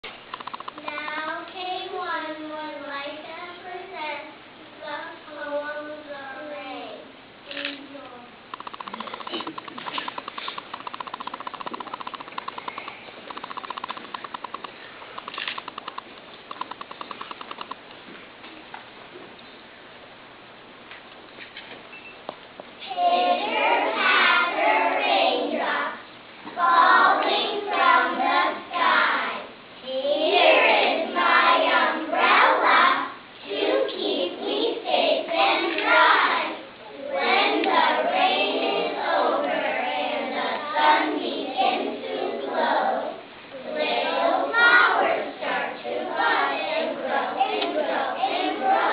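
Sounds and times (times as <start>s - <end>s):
child reciting sing-song: 0.8s - 8.4s, 22.8s - 48.9s.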